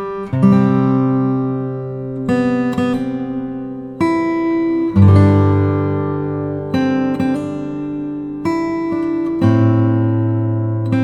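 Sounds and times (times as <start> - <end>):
acoustic guitar strummed chords: 0.0 - 11.0.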